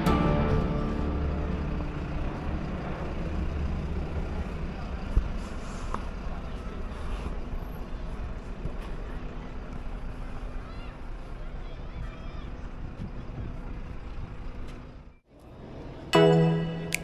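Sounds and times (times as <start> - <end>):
low mechanical rumble: 0.0 - 7.0.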